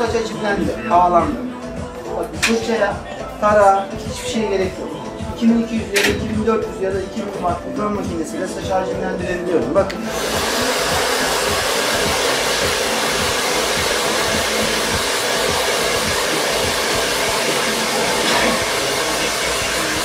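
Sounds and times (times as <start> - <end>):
hair dryer blowing: 9.9 - 20.0.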